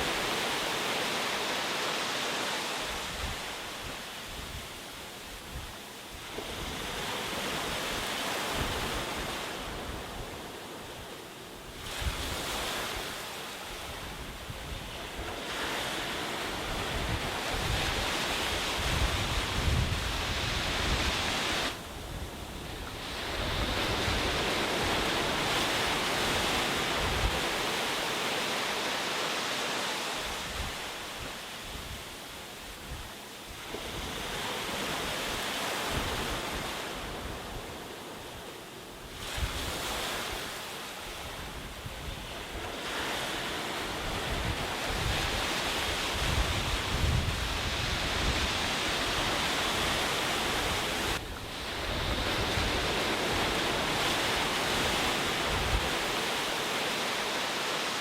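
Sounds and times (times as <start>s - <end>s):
sea surf breaking on beach: 0.0s - 58.0s
wind buffeting microphone: 16.4s - 28.0s, 43.4s - 56.3s.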